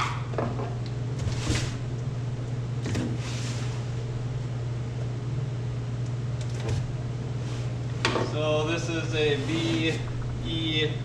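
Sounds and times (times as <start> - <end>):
low background hum: 0.0 - 11.0
cardboard rustling scrapes: 3.2 - 4.0, 9.2 - 10.1.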